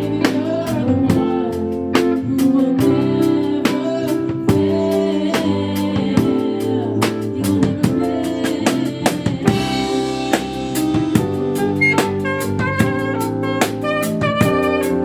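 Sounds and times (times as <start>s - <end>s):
drum kit beat: 0.0s - 15.0s
live band playing gospel music: 0.0s - 15.0s.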